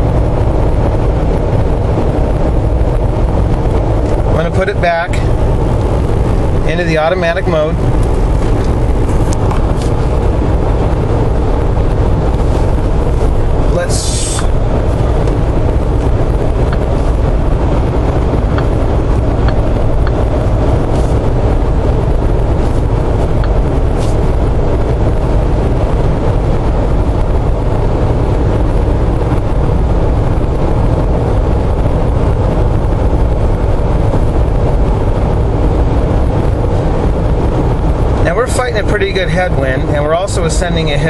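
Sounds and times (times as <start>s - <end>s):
in-cabin car drone: 0.0s - 41.0s.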